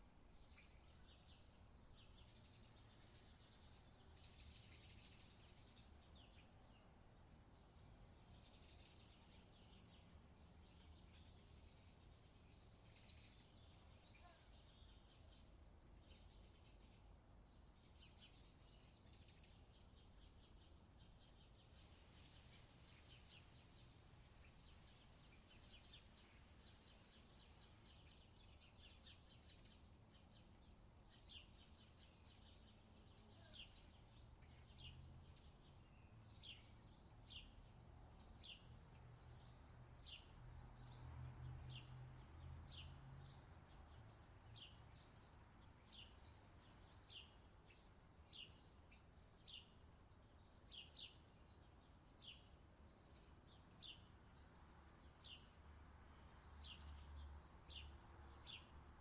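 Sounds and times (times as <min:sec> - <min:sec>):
small bird chirping: 0:07.6 - 0:41.0.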